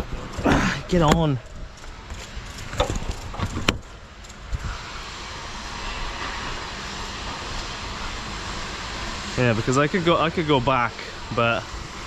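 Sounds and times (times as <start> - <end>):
rushing noise: 0.0 - 12.0.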